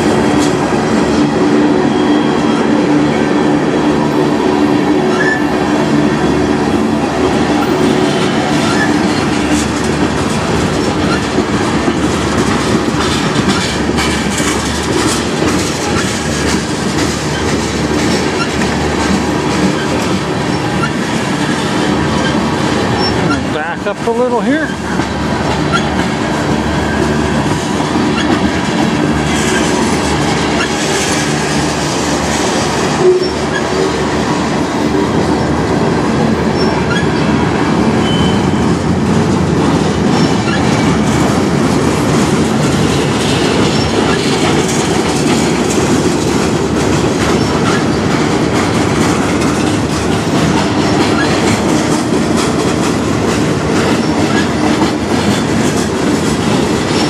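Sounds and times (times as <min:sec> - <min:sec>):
freight train rumbling past: 0:00.0 - 0:57.0
wheel clicks over rail joints: 0:07.6 - 0:26.4, 0:38.0 - 0:57.0.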